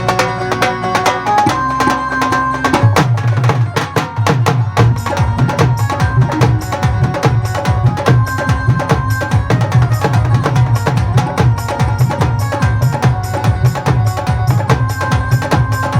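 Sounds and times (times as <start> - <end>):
held melodic notes: 0.0 - 15.9
steady drum beat: 0.0 - 15.9.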